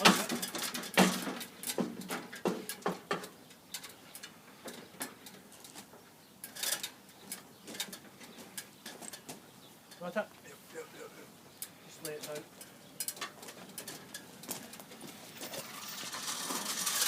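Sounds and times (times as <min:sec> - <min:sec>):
knocks and clicks of scaffold fittings: 0:00.0 - 0:04.0.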